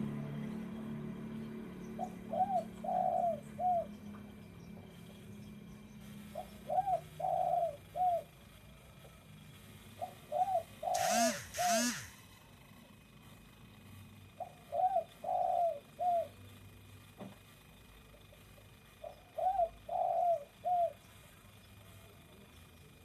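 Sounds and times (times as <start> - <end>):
dove cooing: 2.0 - 4.0, 6.2 - 8.4, 9.9 - 12.1, 14.3 - 16.4, 18.2 - 21.1.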